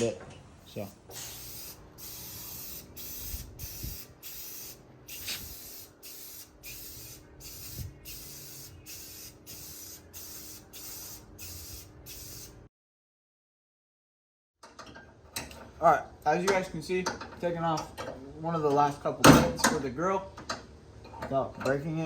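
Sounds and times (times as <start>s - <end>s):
spray paint can hissing: 0.9s - 12.6s.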